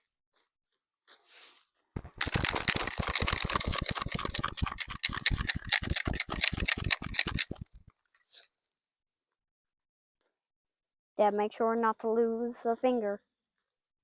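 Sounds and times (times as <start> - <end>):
dirt sifter rattling: 2.0 - 7.8.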